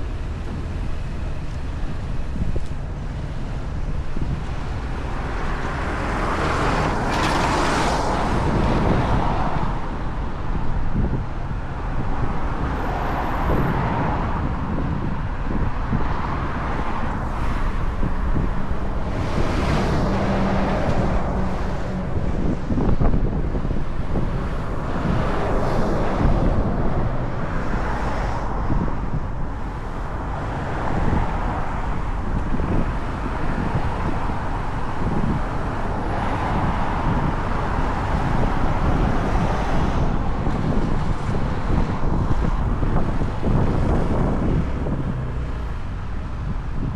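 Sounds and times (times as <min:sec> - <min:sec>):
road noise: 0:00.0 - 0:46.9
wind buffeting microphone: 0:00.0 - 0:46.9.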